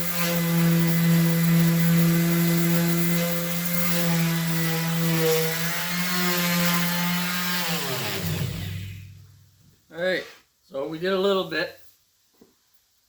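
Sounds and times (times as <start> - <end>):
electric sander on rusty metal: 0.0 - 9.4.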